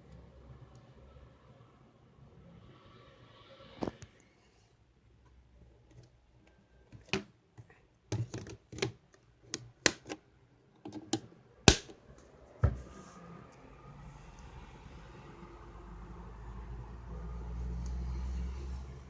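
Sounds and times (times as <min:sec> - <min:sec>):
hard objects clicking and knocking: 0:08.1 - 0:10.2.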